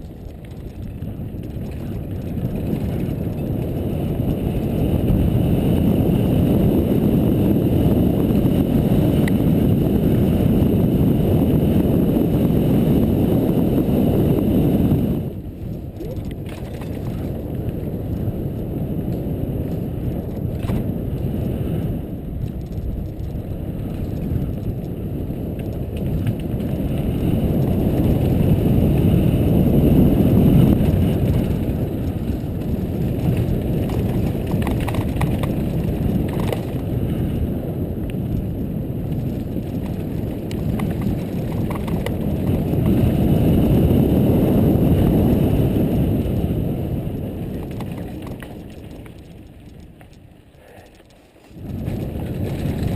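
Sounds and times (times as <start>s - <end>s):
bike tyres on dirt trail: 0.0s - 52.9s
wind rumbling on microphone: 0.0s - 52.9s.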